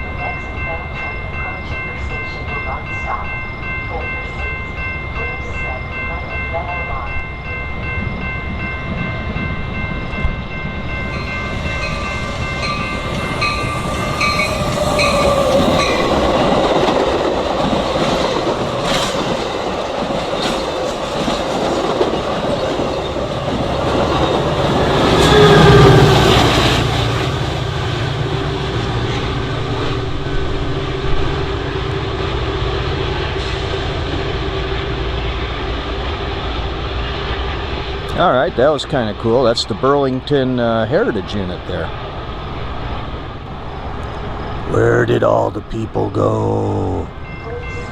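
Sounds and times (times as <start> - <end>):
train wheels clattering on rails: 8.8 - 30.1
train horn blasts: 24.8 - 26.5.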